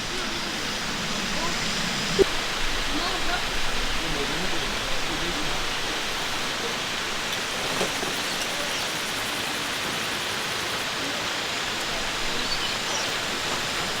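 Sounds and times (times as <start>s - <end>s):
steady rushing noise: 0.0s - 12.5s.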